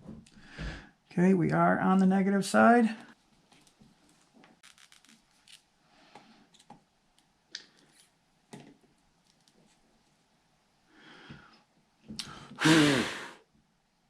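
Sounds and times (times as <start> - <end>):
light scraping of small parts: 3.5 - 5.6
small parts clicking: 4.6 - 5.6.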